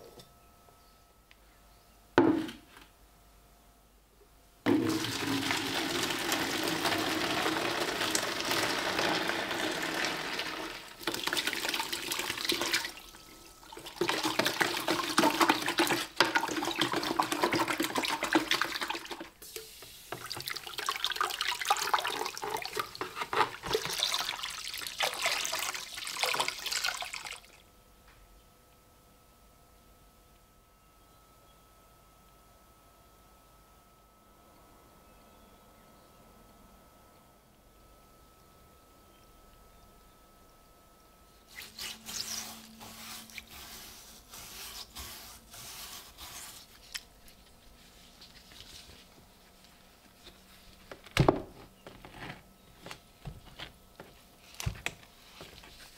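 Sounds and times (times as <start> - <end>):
water running from tap: 4.9 - 13.1.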